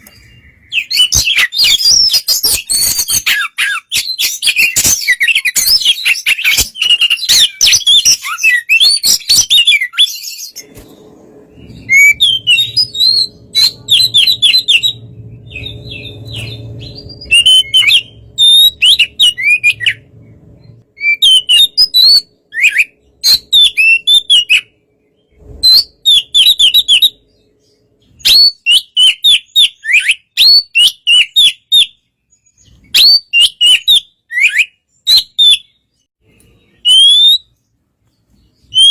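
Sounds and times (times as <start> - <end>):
bird singing whistled trills: 0.0 - 37.6, 38.4 - 38.9
low hum: 10.5 - 28.2.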